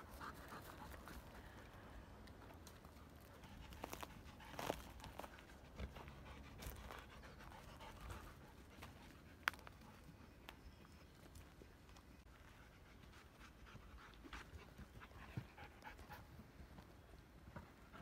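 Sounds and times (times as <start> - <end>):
dog panting softly: 3.3 - 10.2, 12.4 - 16.4.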